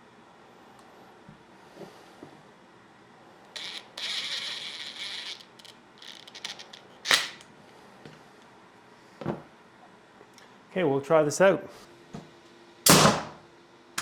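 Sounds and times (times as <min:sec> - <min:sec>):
metal tool parts rattling: 0:03.6 - 0:07.4.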